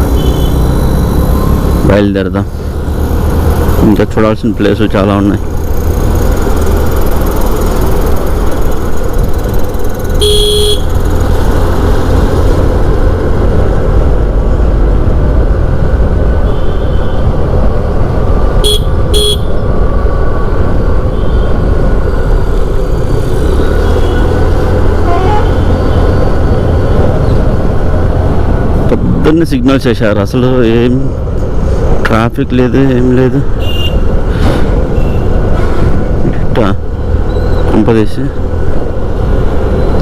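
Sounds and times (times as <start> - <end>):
motorcycle engine rumble: 0.0 - 40.0
vehicle horn: 0.1 - 0.6, 10.2 - 10.9, 18.6 - 19.5, 25.0 - 25.7, 33.6 - 34.1.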